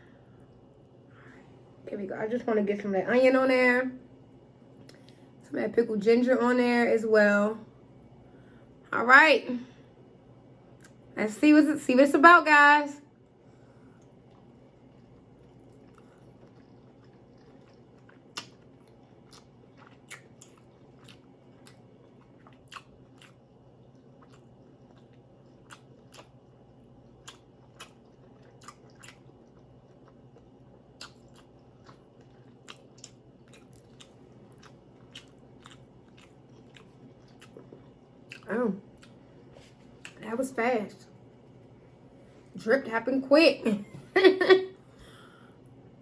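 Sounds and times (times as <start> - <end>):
faint steady low hum: 0.0 - 46.0
person chewing: 14.0 - 40.2
wet mouth clicks and smacks: 17.4 - 18.7, 31.0 - 31.6.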